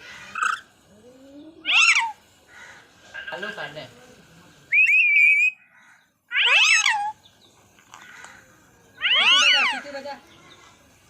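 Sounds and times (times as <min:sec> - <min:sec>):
parrot meow-like calls: 0:01.6 - 0:02.2, 0:06.3 - 0:07.2, 0:09.0 - 0:09.9.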